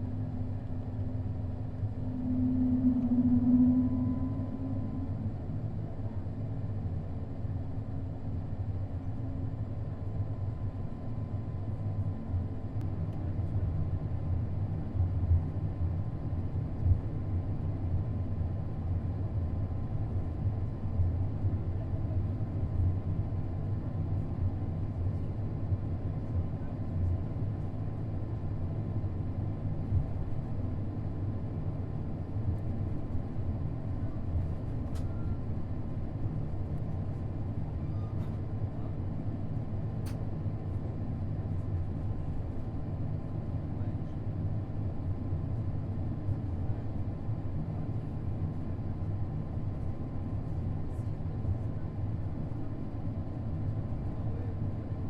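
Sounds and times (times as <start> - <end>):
aircraft engine low rumble: 0.0 - 55.0
faint high tone: 1.9 - 5.9.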